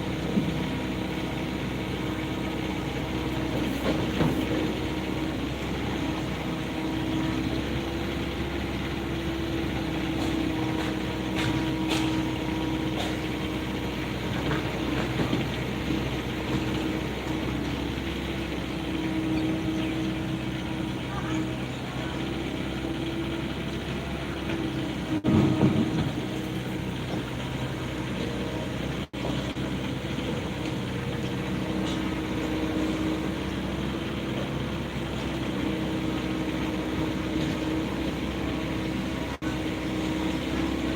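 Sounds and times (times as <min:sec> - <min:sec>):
excavator diesel engine under load: 0:00.0 - 0:40.9.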